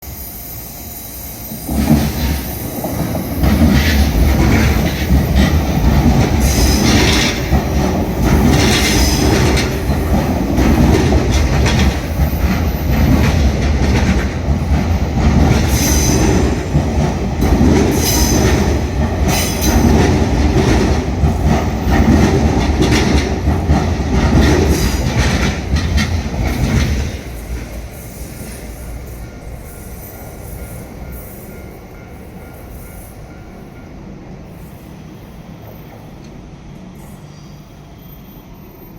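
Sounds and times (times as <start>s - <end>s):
train wheels rumbling on rail: 0.0s - 38.9s
wheels clacking over rail joints: 1.8s - 27.8s.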